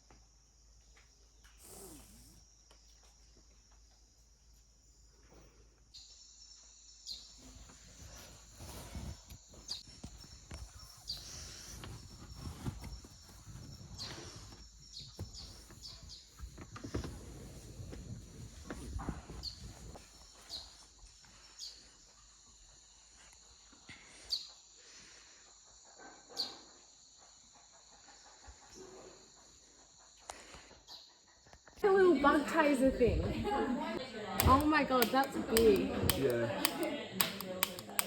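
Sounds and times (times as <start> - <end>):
insects droning: 24.8 - 38.0.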